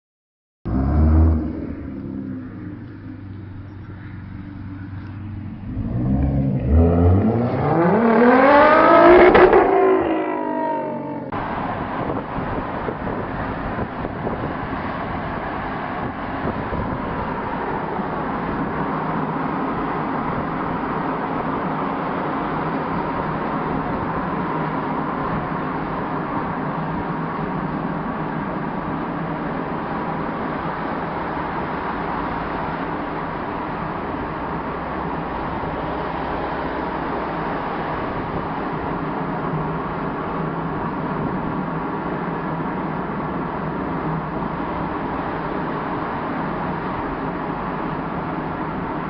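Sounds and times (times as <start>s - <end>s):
sports car engine revving: 0.7s - 11.4s.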